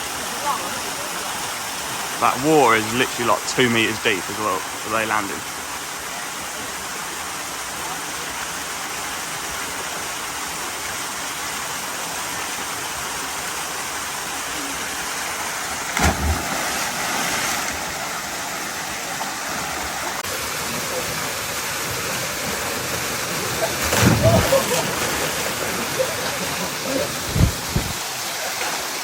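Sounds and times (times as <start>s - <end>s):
waterfall rushing into pool: 0.0s - 29.0s
loud thump: 16.0s - 16.8s.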